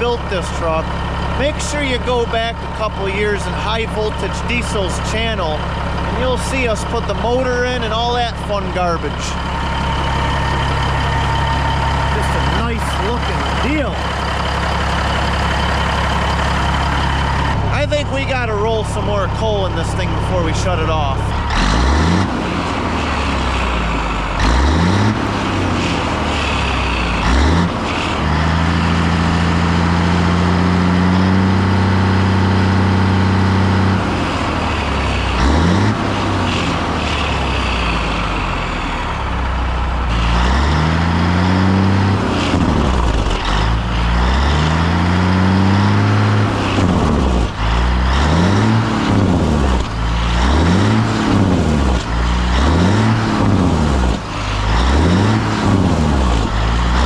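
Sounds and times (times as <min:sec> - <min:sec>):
truck diesel engine revving: 0:00.0 - 0:57.0.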